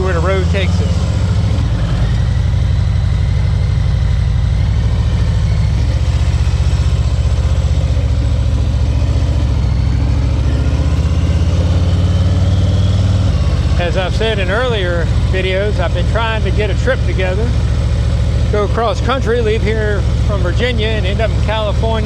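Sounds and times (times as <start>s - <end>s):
motorcycle engine rumbling: 0.0s - 22.0s.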